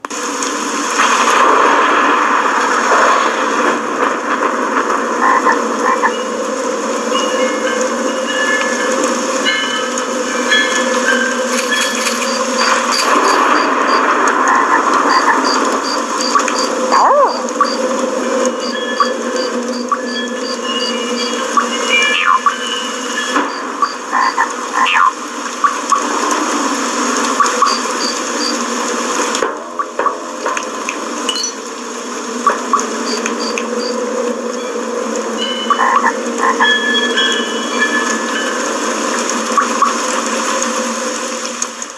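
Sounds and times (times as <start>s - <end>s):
frogs croaking in chorus: 5.2s - 26.2s, 27.2s - 28.8s, 32.2s - 40.3s
electronic swoops and chirps: 11.1s - 17.9s, 18.6s - 24.0s
brief electronic tones: 11.2s - 14.0s, 32.8s - 34.0s
short higher frog calls: 11.6s - 17.9s, 21.2s - 22.8s, 23.8s - 26.0s.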